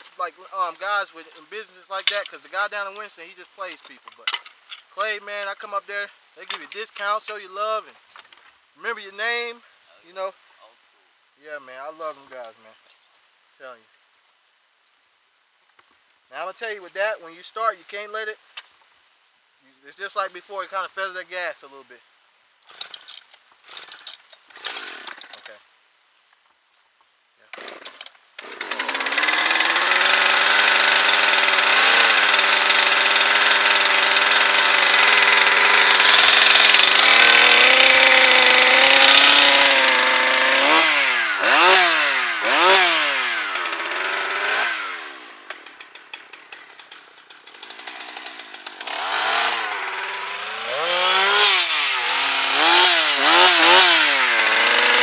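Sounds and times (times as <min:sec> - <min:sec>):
chainsaw revving and idling: 0:24.5 - 0:25.6, 0:27.5 - 0:55.0.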